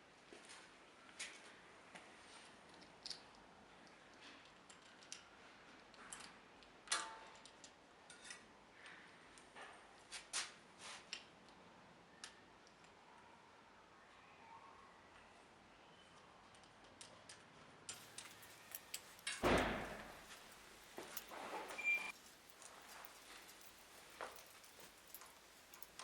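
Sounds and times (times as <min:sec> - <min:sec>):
tools and parts clicking: 0:02.7 - 0:09.5, 0:16.5 - 0:26.0
metallic clink: 0:18.0 - 0:26.0.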